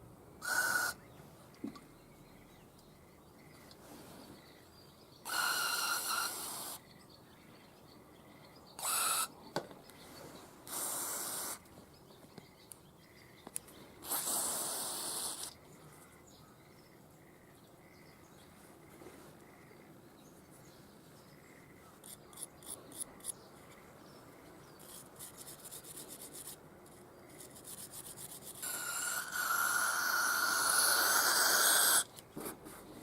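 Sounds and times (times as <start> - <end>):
hissing blasts from nozzle: 10.7 - 11.6, 14.0 - 15.5.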